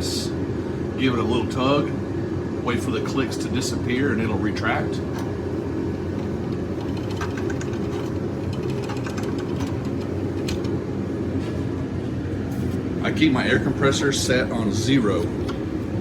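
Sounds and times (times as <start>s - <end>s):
steady low rumble: 1.9s - 16.0s
hose reel ratchet clicking: 6.2s - 10.8s.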